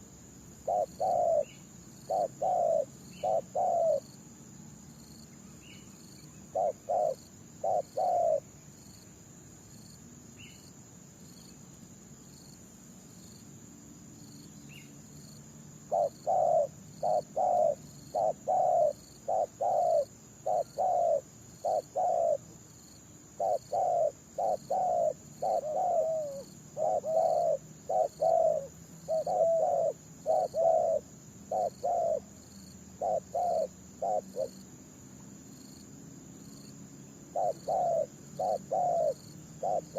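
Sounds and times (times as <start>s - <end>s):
high insect drone: 0.0s - 39.9s
dove cooing: 0.6s - 1.5s, 2.1s - 4.1s, 6.5s - 8.4s, 15.9s - 22.6s, 23.4s - 32.3s, 33.0s - 34.6s, 37.3s - 39.9s
faint high bird chirps: 0.7s - 4.2s, 5.2s - 8.5s, 14.6s - 15.1s, 23.4s - 34.6s, 36.6s - 39.9s.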